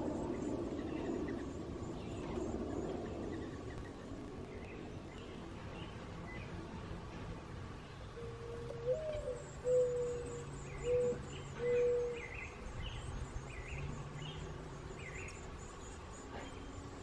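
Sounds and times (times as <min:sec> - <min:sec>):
nestlings peeping: 0:00.0 - 0:07.0
bird hooting: 0:08.2 - 0:12.5.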